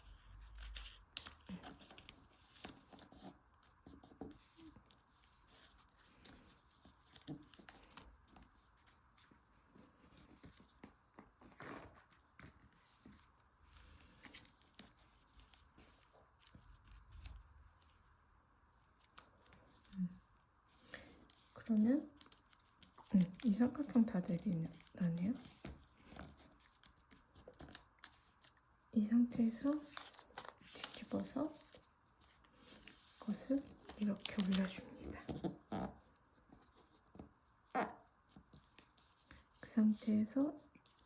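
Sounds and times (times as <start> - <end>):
paper rustling and crinkling: 0.0 - 18.2, 18.8 - 28.6, 29.3 - 37.4, 38.2 - 40.0
small paper clicks: 0.2 - 8.9.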